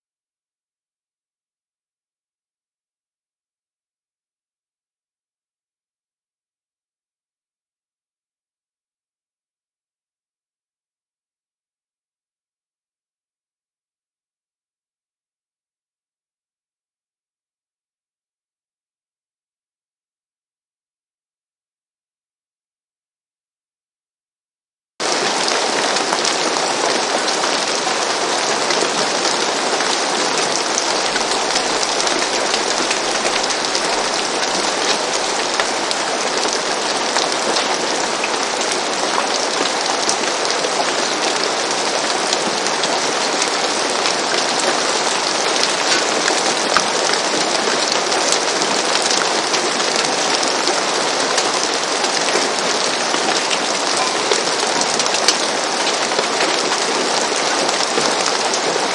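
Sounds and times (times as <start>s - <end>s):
rain falling on a roof: 25.0s - 58.9s.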